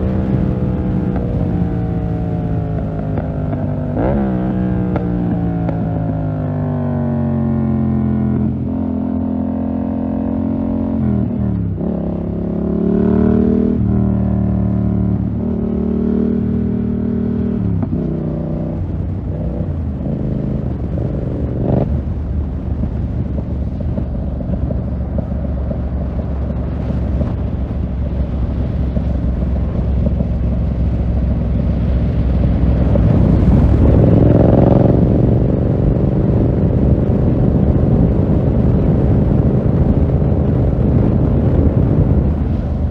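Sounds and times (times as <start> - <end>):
exhaust crack: 0.0 - 5.9, 20.7 - 42.9
motorcycle engine revving: 0.0 - 42.9.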